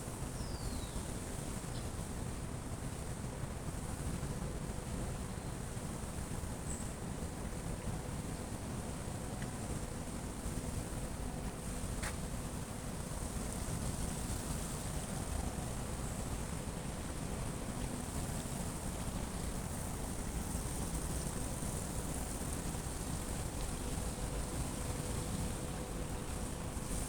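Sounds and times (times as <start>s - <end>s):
light drizzle hiss: 5.7s - 27.0s.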